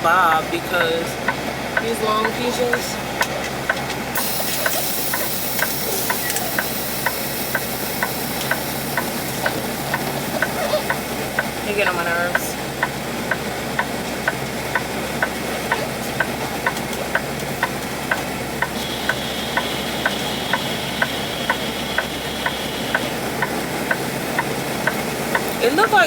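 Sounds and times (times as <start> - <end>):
truck engine running: 0.0 - 26.0
turn signal clicking: 0.8 - 26.0
thin high steady tone: 4.2 - 12.5, 18.6 - 24.6.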